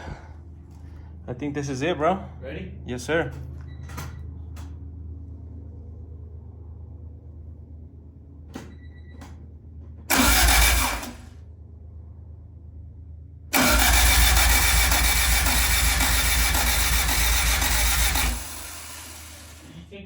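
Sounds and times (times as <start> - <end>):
faint short beeps: 8.7 - 9.2
engine starter cranking: 10.1 - 11.4, 13.5 - 19.7.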